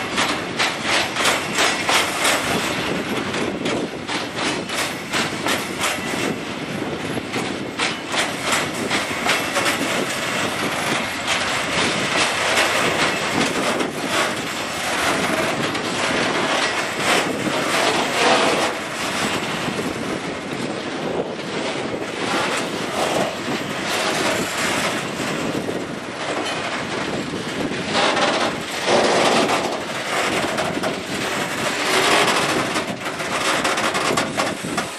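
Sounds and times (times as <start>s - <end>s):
train wheels clattering on rails: 0.0s - 34.9s.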